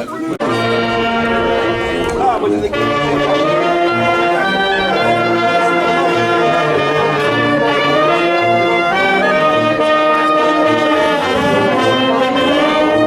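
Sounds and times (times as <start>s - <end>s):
brass band playing: 0.4s - 13.0s.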